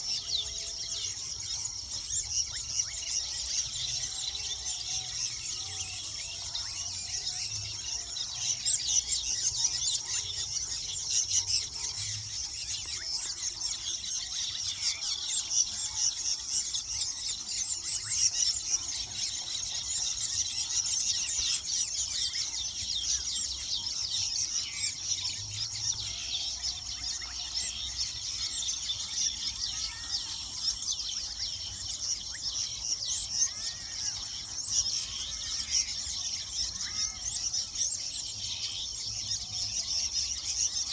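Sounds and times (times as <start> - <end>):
birds chattering: 0.0 - 40.9.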